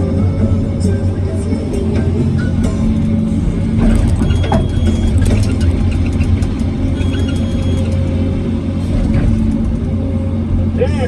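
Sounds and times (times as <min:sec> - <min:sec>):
excavator diesel engine running: 0:00.0 - 0:11.0
clicks and rattles: 0:03.8 - 0:08.1.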